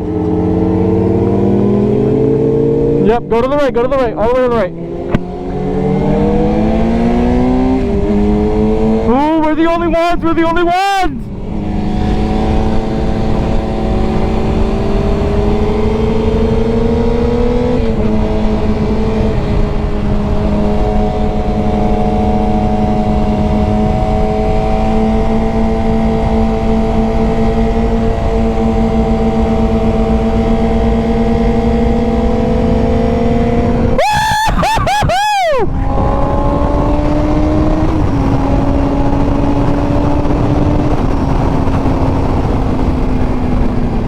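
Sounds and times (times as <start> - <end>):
motorcycle engine at high revs: 0.0 - 9.5, 11.3 - 44.0
wind noise: 0.0 - 44.0.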